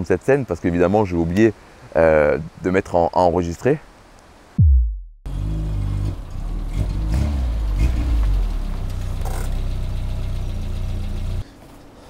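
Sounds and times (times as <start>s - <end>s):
car engine revving and idling: 5.3s - 11.4s.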